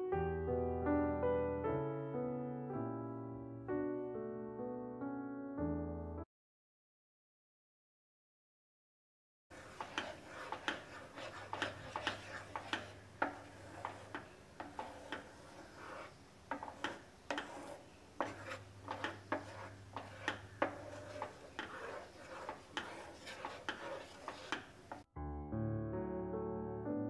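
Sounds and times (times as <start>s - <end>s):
spatula scraping nonstick pan: 9.5s - 25.1s.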